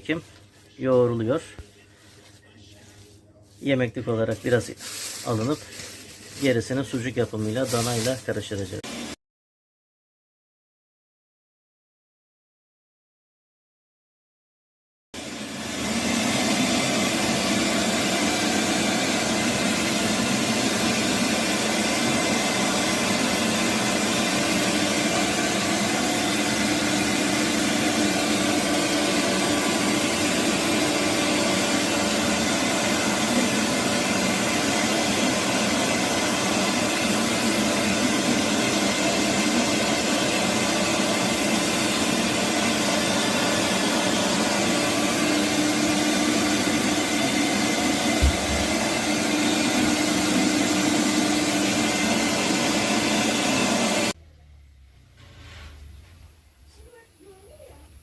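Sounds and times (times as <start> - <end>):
meat machine motor hum: 15.2 - 54.3.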